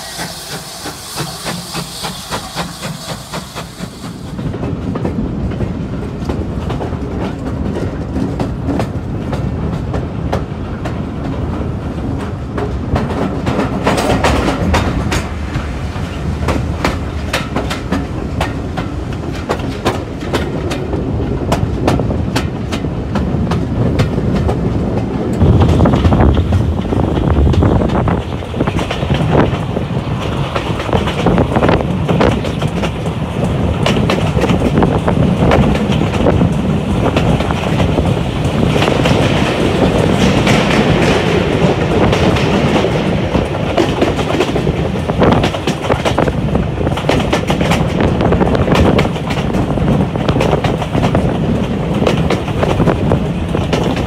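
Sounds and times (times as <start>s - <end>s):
steam hissing: 0.0s - 4.5s
train rumble: 0.0s - 54.0s
wheels clicking over rail joints: 0.0s - 54.0s.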